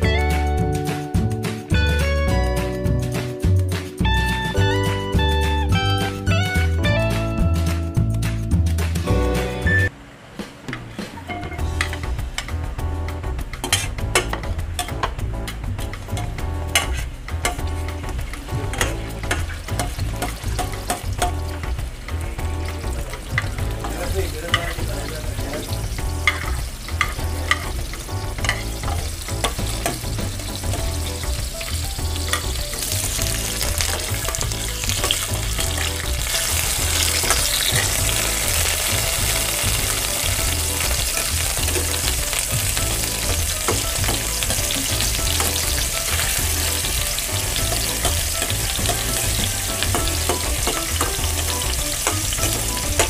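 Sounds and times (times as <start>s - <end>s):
vegetables sizzling in oil: 16.1s - 53.0s.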